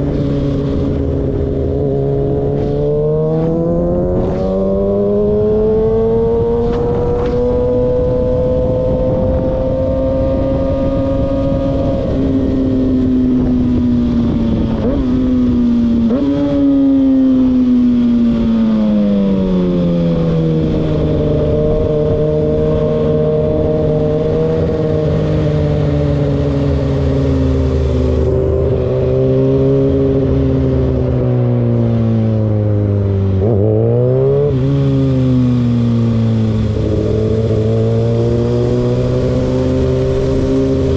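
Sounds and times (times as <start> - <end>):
car engine revving: 0.0 - 12.5, 32.5 - 40.9
car engine droning: 0.0 - 40.9.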